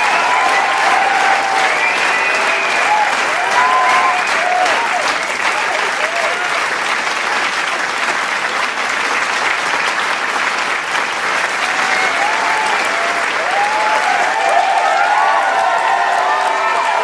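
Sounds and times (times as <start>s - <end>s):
cheers and whoops: 0.0s - 6.6s, 11.6s - 17.0s
crowd applauding: 0.0s - 17.0s.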